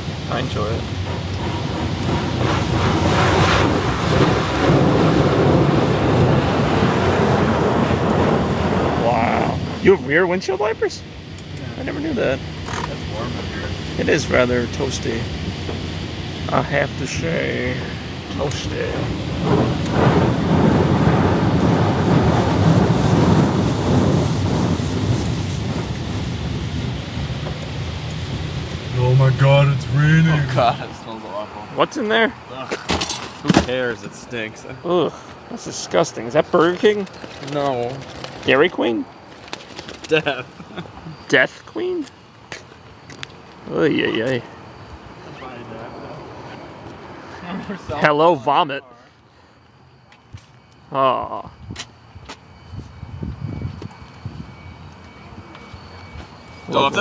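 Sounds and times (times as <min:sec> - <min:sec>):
car wash spraying: 0:00.0 - 0:32.2.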